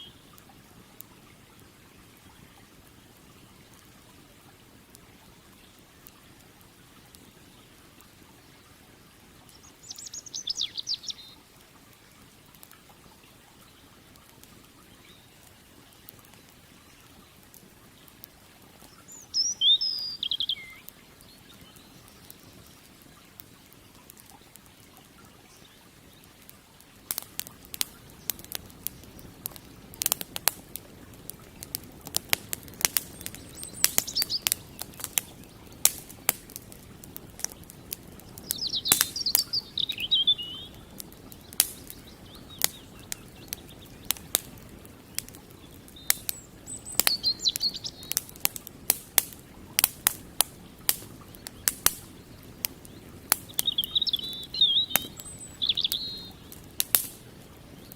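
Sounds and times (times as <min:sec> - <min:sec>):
campfire crackling and popping: 0:00.0 - 0:57.9
small bird chirping: 0:09.5 - 0:11.4, 0:18.8 - 0:22.9, 0:32.8 - 0:35.8, 0:37.4 - 0:44.4, 0:45.1 - 0:48.4, 0:51.3 - 0:56.6.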